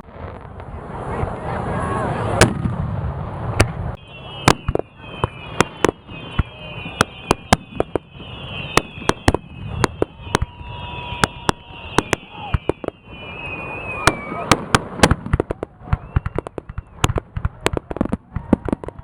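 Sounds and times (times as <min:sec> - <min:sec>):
fireworks bangs: 0:00.0 - 0:19.0
falling whistles: 0:04.0 - 0:14.7, 0:15.8 - 0:17.2.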